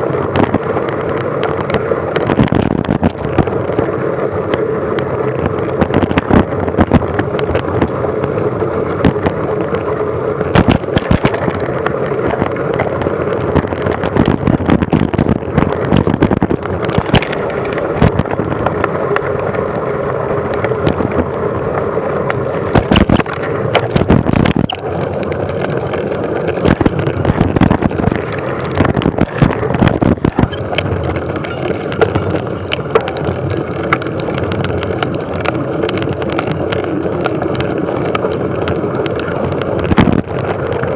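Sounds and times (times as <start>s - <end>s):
wind noise on microphone: 0.0s - 40.9s
knocks and rattles: 10.5s - 18.9s, 22.7s - 40.8s.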